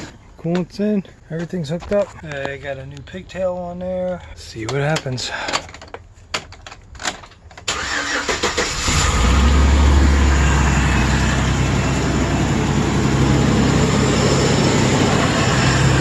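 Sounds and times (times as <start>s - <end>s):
engine starter cranking: 7.0s - 9.8s
van engine idling: 7.7s - 16.0s.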